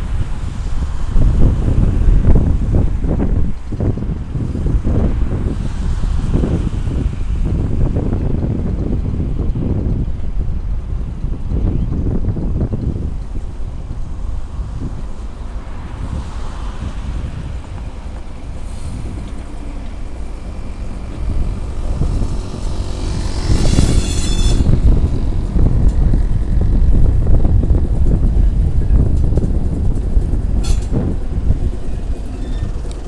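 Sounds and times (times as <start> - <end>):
diesel locomotive rumbling: 0.0 - 33.0
wind on microphone: 0.0 - 33.0
high-pitched squeal: 15.0 - 33.0.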